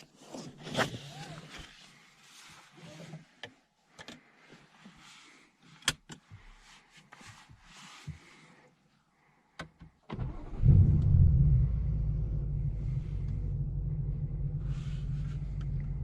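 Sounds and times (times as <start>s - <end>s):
rustling: 0.0s - 3.4s
deep rumble: 10.4s - 16.0s.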